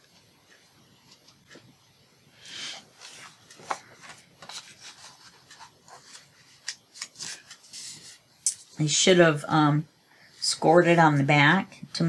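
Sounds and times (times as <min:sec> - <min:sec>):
paper rustling: 0:02.8 - 0:08.2.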